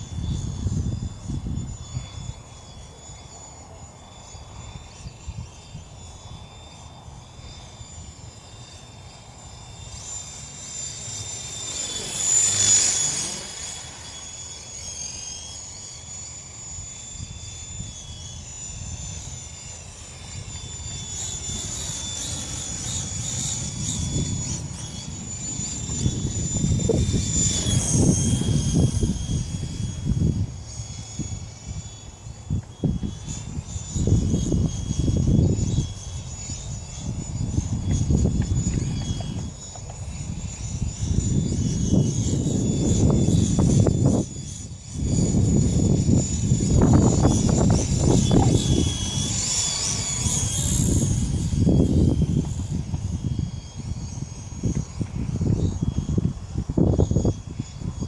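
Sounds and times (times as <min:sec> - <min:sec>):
wind buffeting microphone: 0:00.0 - 0:02.5, 0:17.1 - 0:58.0
rc helicopter whining: 0:00.0 - 0:58.0.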